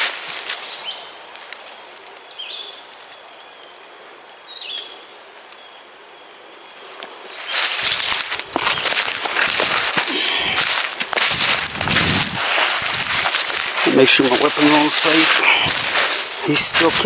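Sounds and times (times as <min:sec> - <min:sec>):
dry leaves crunching and rustling: 0:00.0 - 0:03.4, 0:06.8 - 0:17.0
songbird chirps: 0:00.4 - 0:10.2.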